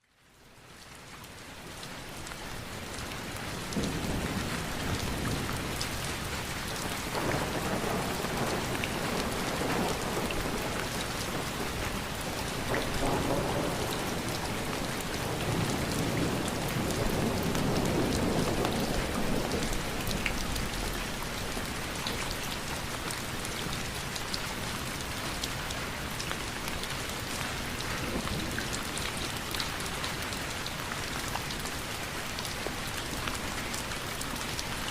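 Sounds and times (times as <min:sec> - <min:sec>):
steady rain falling: 0:00.0 - 0:34.9
low rumbles of thunder: 0:03.7 - 0:21.8.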